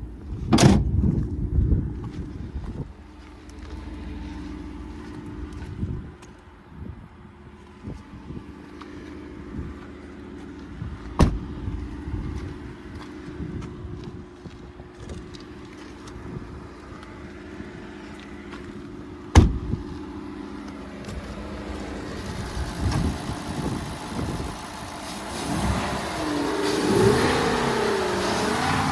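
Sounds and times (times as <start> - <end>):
pickup engine idling: 7.2 - 28.9
sharp thump: 11.2 - 11.6, 19.3 - 19.8
engine revving: 20.5 - 28.9.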